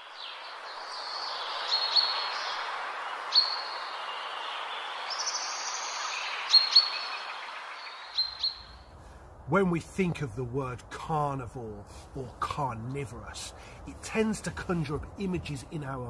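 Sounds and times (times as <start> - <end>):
small birds chirping: 0.0 - 9.0
steady background hiss: 0.0 - 16.0.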